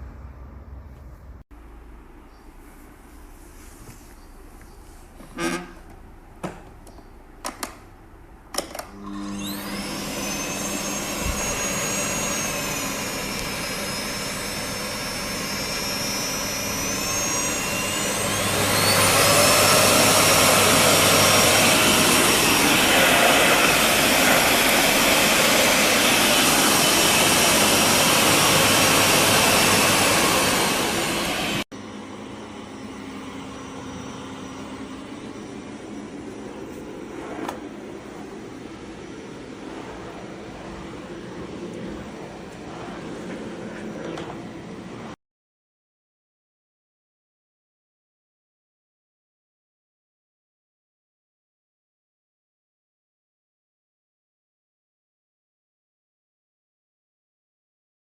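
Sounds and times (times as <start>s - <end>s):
vacuum cleaner motor whining: 5.2s - 5.8s, 8.6s - 45.2s.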